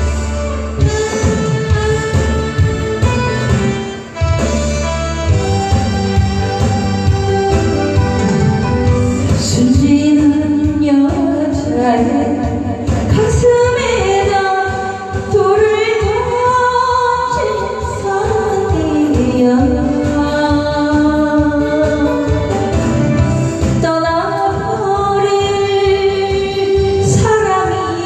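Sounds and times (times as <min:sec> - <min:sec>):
full band accompaniment: 0:00.0 - 0:28.0
woman singing pop song: 0:09.2 - 0:28.0.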